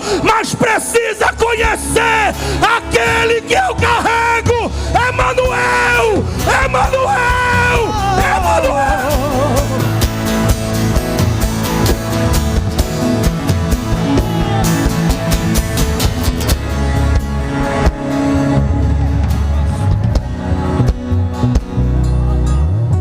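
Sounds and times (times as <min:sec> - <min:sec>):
band music: 0:00.0 - 0:23.0
drum kit hits: 0:10.1 - 0:18.2.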